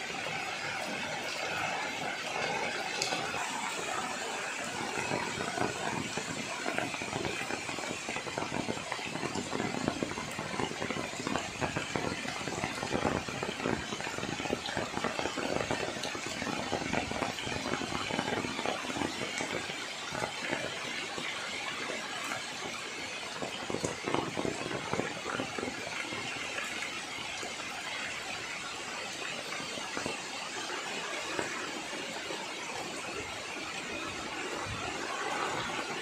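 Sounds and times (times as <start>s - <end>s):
heavy rain on leaves: 0.0s - 36.0s.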